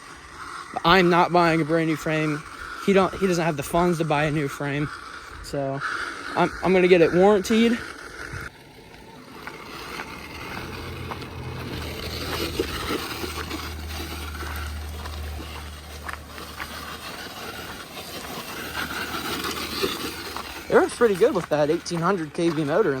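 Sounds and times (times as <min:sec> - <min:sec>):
rc car motor humming: 0:00.0 - 0:23.0.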